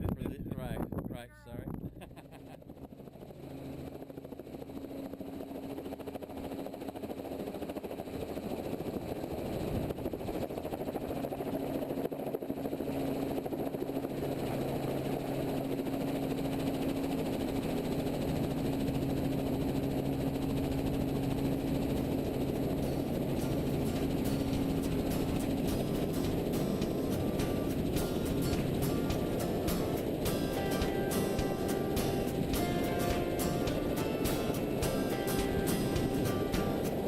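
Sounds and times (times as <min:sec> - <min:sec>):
helicopter engine and rotor: 0:02.2 - 0:37.0.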